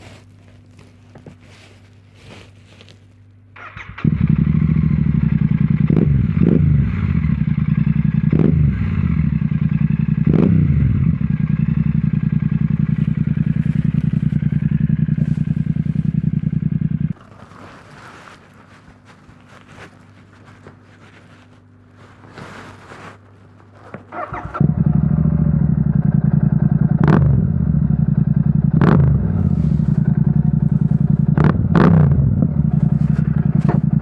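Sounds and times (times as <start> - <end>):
motorcycle engine revving and idling: 3.6 - 17.7, 24.1 - 34.0.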